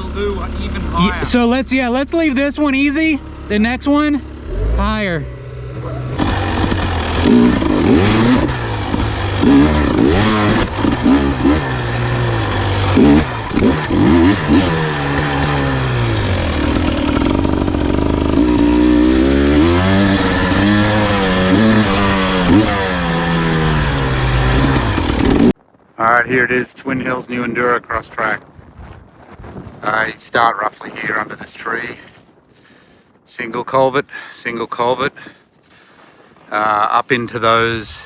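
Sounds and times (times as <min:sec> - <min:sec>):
engine revving up and down: 0:00.0 - 0:25.6.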